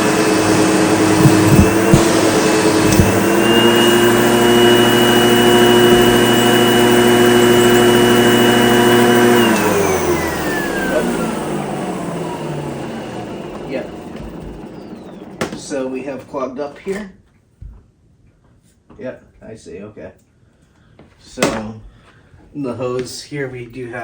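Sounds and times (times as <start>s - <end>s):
vacuum cleaner running: 0.0s - 16.3s.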